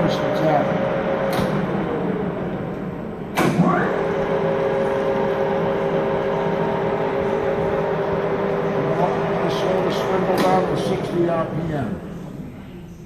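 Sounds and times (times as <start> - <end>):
drill press whining: 0.0 - 12.3
drill press clunk: 3.3 - 4.1, 9.5 - 11.1.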